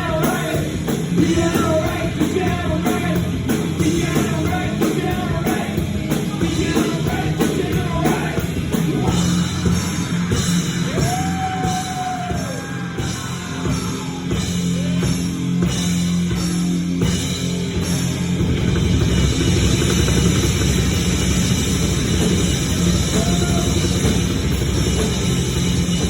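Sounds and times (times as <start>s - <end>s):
loud rock band: 0.0s - 26.0s
person singing and shouting: 10.8s - 15.1s, 23.1s - 24.0s.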